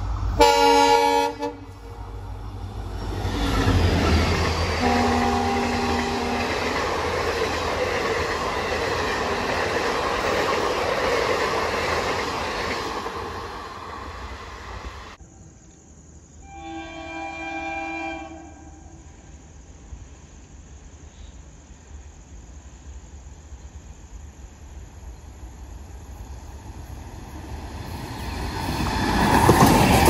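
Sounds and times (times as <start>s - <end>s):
train roaring past: 0.0s - 15.2s, 16.4s - 30.0s
train horn blasts: 0.4s - 2.0s, 4.8s - 6.8s, 16.4s - 19.2s.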